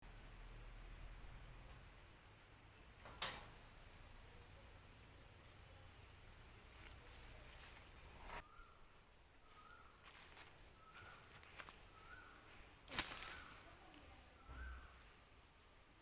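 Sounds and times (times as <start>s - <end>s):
high-pitched insect trill: 0.0s - 16.0s.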